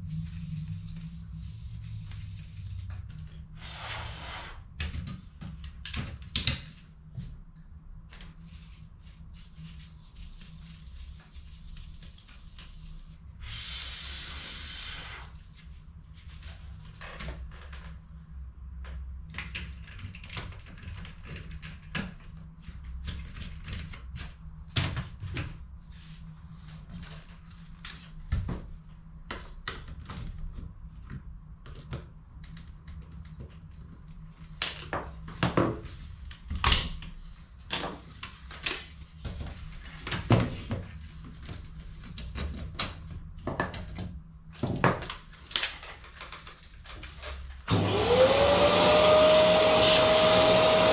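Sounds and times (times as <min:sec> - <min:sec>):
steady low hum: 0:00.0 - 0:04.1.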